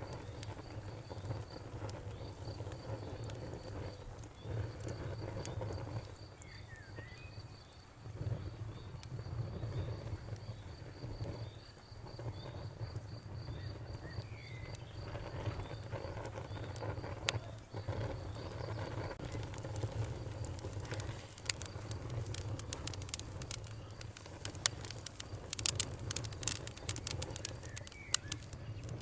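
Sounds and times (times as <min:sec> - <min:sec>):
burning wood crackling: 0:00.0 - 0:29.0
low fire rumble: 0:00.0 - 0:29.0
cricket chirping: 0:00.1 - 0:29.0
bird chirps: 0:27.5 - 0:29.0.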